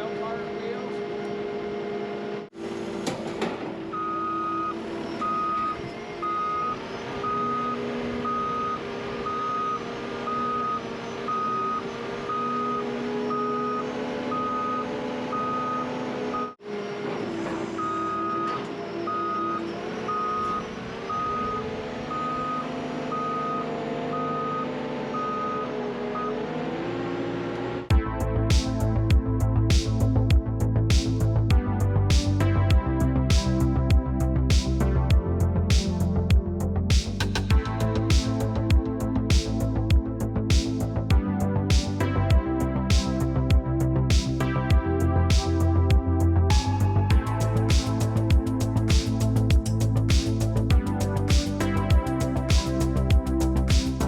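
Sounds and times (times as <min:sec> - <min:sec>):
reversing alarm beeping: 0:03.9 - 0:26.5, 0:46.5 - 0:50.1.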